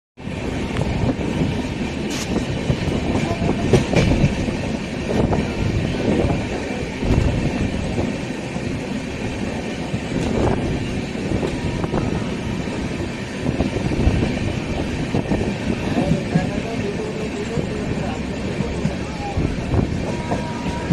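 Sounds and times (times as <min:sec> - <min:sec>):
train rumbling on tracks: 0:00.2 - 0:20.9
train wheels knocking: 0:00.7 - 0:20.9.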